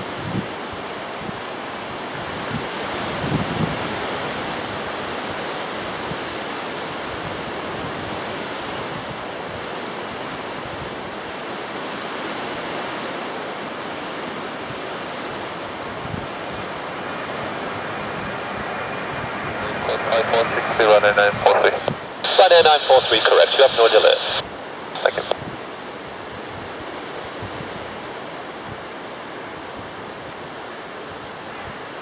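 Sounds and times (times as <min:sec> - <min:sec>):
strong gusty wind rushing: 0:14.6 - 0:22.4
wind buffeting microphone: 0:14.7 - 0:22.0.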